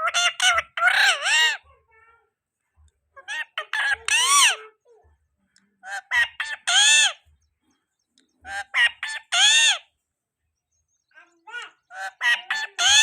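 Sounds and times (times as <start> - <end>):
parrot calling: 0.0 - 1.7, 3.2 - 4.8, 5.8 - 7.2, 8.4 - 9.9, 11.2 - 13.0.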